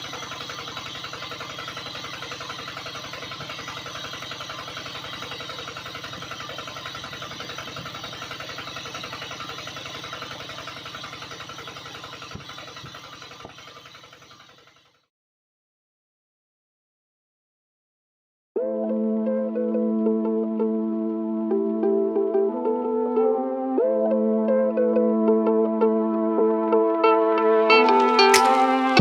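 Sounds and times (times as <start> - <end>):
small motor pulsing: 0.0 - 15.1.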